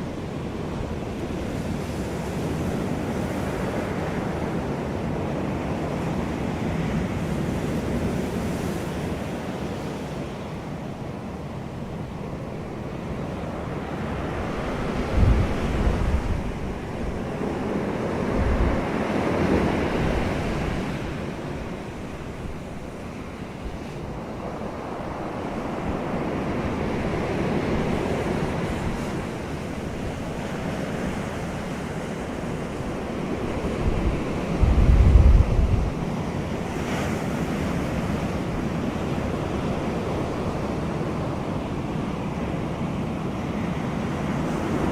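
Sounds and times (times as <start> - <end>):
wind buffeting microphone: 13.4 - 41.4.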